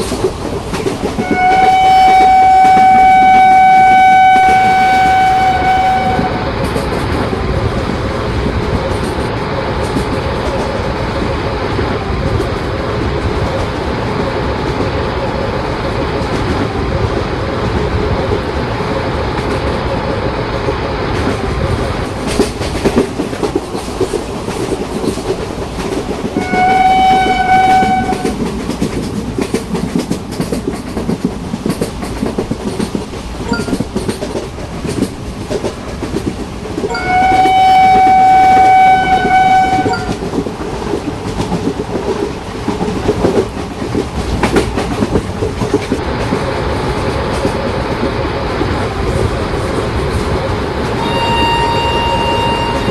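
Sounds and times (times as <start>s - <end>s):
train wheels clattering on rails: 0.0s - 52.9s
train horn blasts: 1.2s - 6.5s, 26.4s - 28.4s, 36.9s - 40.2s, 51.0s - 52.9s.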